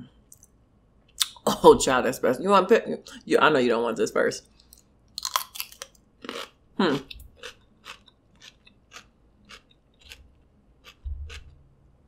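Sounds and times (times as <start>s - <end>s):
chewing cucumber wet crunch: 5.2s - 11.6s.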